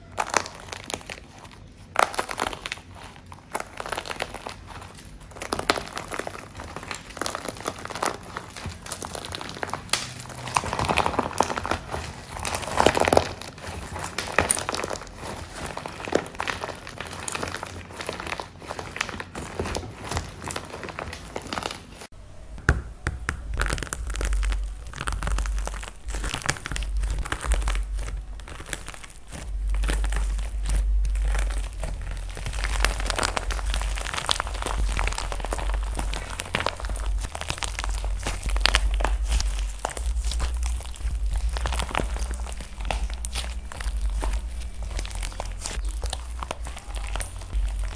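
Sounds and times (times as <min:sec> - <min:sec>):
dry clay crunching by hand: 0:00.0 - 0:47.9
low handling rumble: 0:22.1 - 0:47.9.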